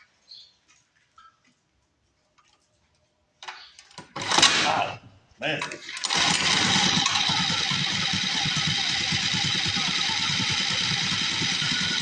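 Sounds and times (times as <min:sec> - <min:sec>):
small engine idling: 0:05.8 - 0:12.0.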